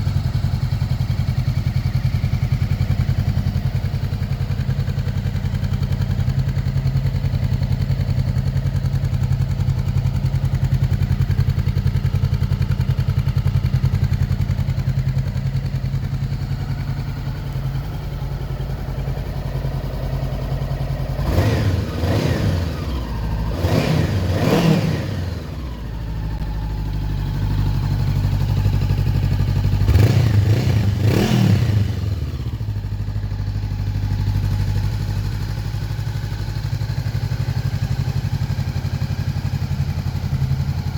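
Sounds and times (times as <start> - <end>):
motorcycle engine idling: 0.0 - 40.9
engine revs blipped: 21.2 - 25.7.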